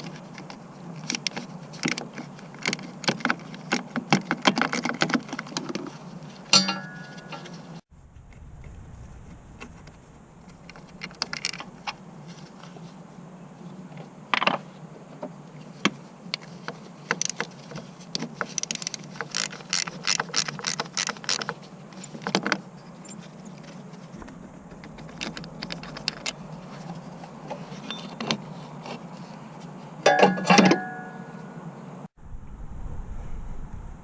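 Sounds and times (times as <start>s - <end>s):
hand tools clicking and knocking: 0.0s - 7.7s, 16.4s - 23.2s, 30.0s - 31.2s
steady low hum: 5.2s - 34.0s.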